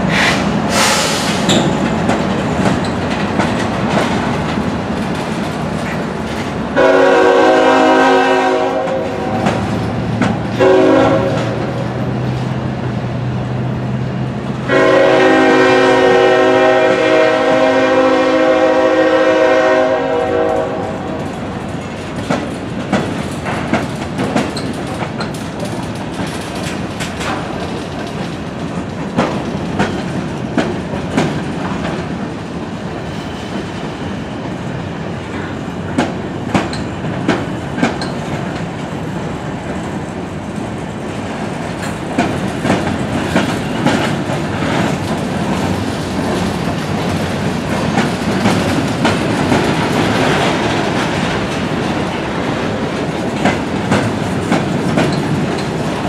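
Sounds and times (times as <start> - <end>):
freight train rumbling: 0.0 - 56.0
wheels clicking over rail joints: 1.4 - 6.8, 8.8 - 13.1, 20.4 - 32.7, 35.2 - 56.0
train horn blast: 6.8 - 9.6, 10.6 - 11.8, 14.6 - 21.3.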